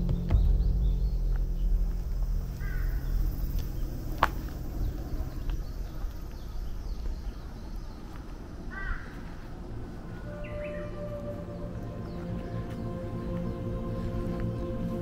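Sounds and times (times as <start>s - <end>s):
low steady rumble: 0.0s - 8.0s
bird chirping: 0.0s - 15.0s.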